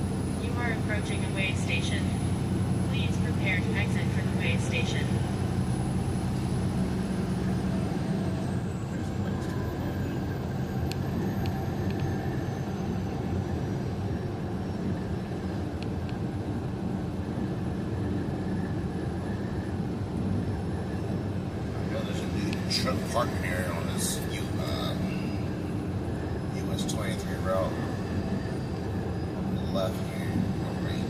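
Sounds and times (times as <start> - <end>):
truck engine and road drone: 0.0 - 31.0.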